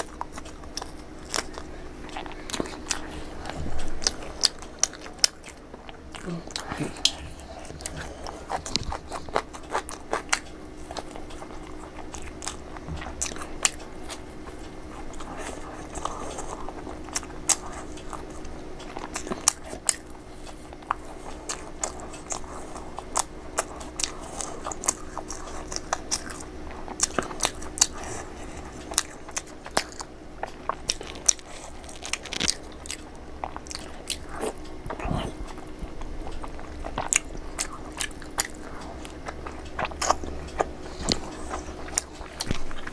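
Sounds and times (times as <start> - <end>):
crunching and chewing fried snack: 0.0 - 42.9
faint steady hum: 0.0 - 42.9.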